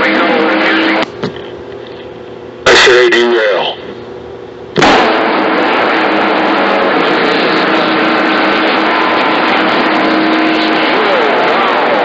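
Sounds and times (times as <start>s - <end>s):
radio static: 0.0s - 4.0s
faint steady tones: 5.5s - 12.0s.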